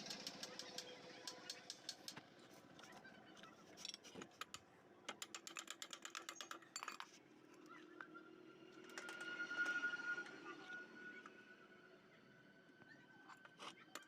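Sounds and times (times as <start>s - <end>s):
rapid ticks: 0.0s - 2.2s.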